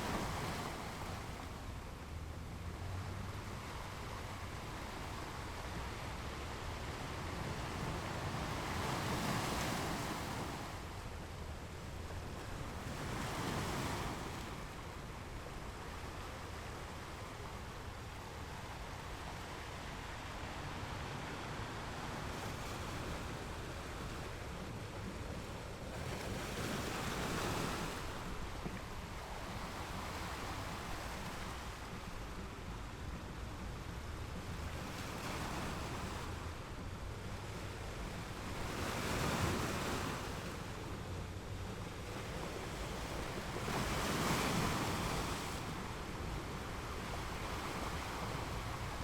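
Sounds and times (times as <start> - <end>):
ocean waves breaking on rocks: 6.6 - 11.0, 18.1 - 49.0.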